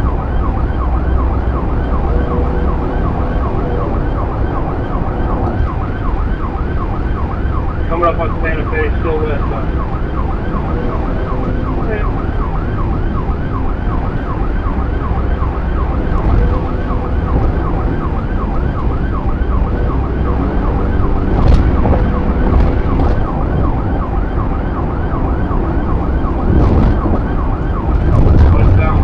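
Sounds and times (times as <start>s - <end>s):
engine and road rumble: 0.0s - 29.0s
police siren yelping: 0.0s - 29.0s.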